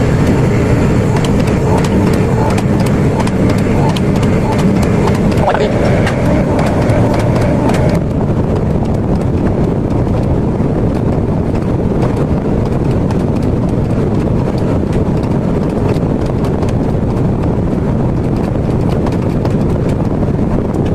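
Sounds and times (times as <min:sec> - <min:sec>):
higher hum: 0:00.0 - 0:09.0
forge burner rumbling: 0:00.0 - 0:20.9.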